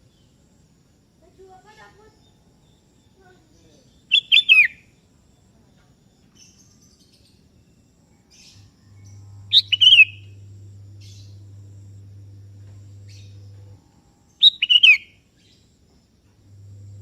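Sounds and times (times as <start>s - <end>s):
bulbul singing: 3.6s - 4.9s, 8.2s - 15.6s
steady low hum: 7.5s - 17.0s.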